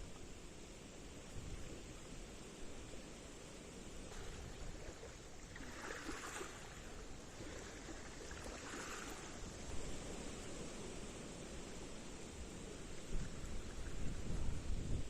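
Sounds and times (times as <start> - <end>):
faint water lapping: 0.0 - 15.0
soft water splashing: 4.0 - 11.1, 12.7 - 14.7.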